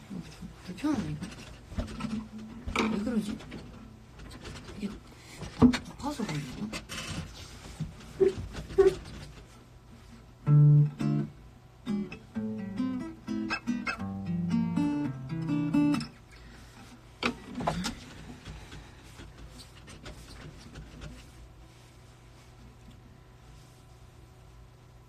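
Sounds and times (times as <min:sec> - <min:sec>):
acoustic guitar picking: 0:10.4 - 0:16.5.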